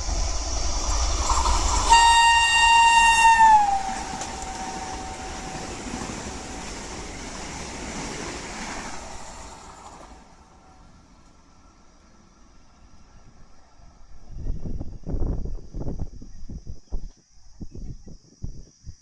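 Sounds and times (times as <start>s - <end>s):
passing train rushing: 0.0s - 15.5s
train horn blast: 1.9s - 7.2s.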